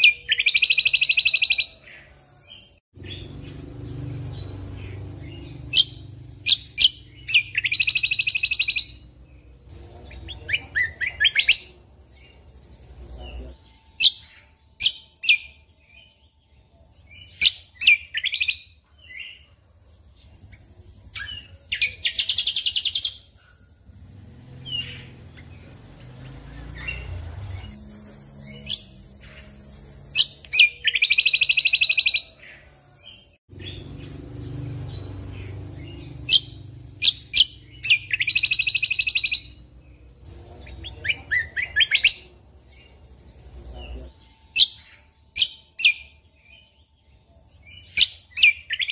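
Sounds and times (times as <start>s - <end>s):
bird chirps and calls: 0.0s - 48.9s
buzzy trilled bird phrases: 33.6s - 48.9s.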